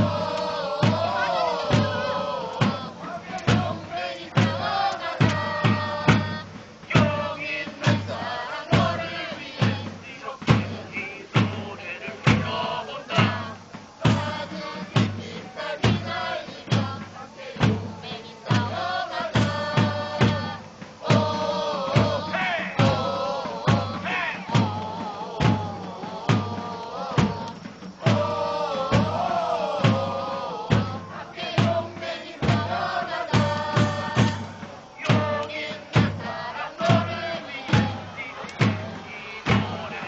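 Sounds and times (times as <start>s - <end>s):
crowd chanting in unison: 0.0s - 40.0s
steady drum beat: 0.0s - 40.0s.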